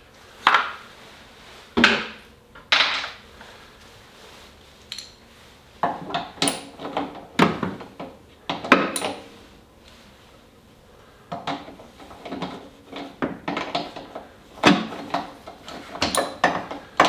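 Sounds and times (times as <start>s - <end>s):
metal tools clinking and scraping: 6.4s - 7.1s, 8.9s - 9.4s, 15.0s - 16.6s.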